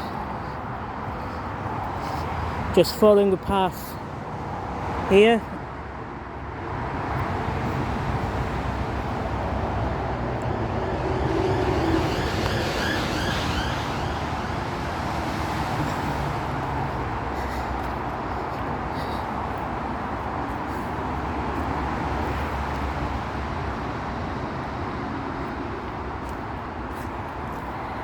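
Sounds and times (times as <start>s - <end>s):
motorway traffic rushing: 0.0s - 28.0s.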